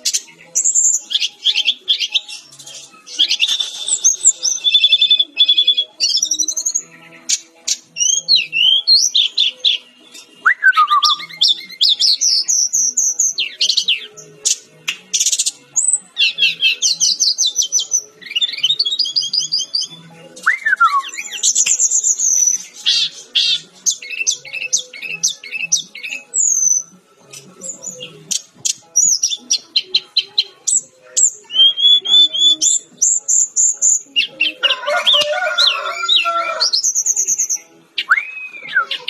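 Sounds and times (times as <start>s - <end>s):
bird singing trills and chirps: 0.0s - 39.0s
falling bird whistles: 38.1s - 38.9s.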